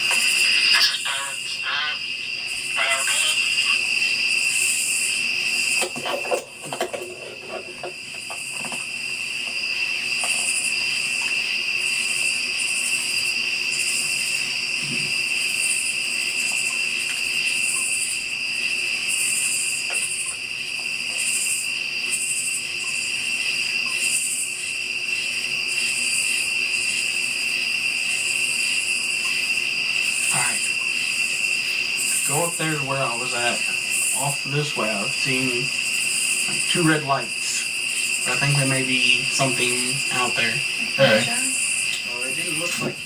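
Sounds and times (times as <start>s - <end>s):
crickets trilling: 0.0s - 43.0s
high-pitched insect call pulsing: 0.0s - 43.0s.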